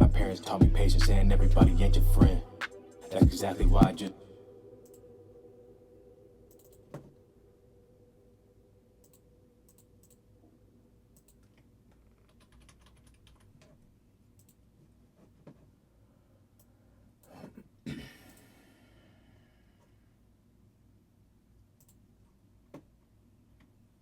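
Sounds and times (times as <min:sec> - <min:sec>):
mouse and keyboard clicks: 0:11.2 - 0:13.8.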